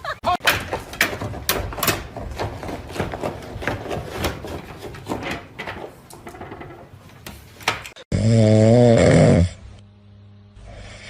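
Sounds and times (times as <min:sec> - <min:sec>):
irregular knocks and clicks: 0:00.4 - 0:08.0.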